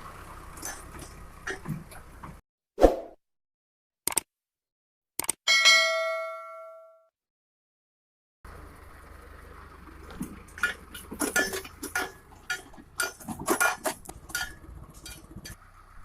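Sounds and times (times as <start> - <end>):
metallic clinks and clanks: 10.2 - 15.6.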